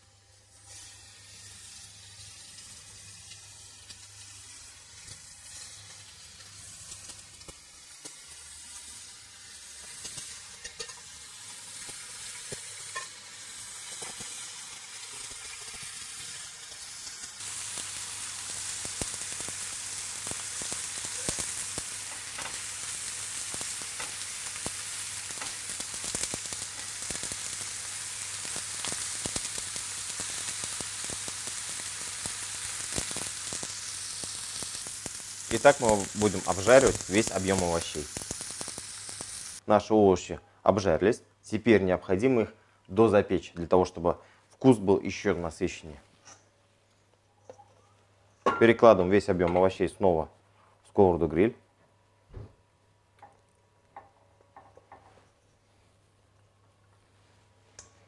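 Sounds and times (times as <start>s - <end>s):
vegetables sizzling on grill pan: 0.0s - 39.6s.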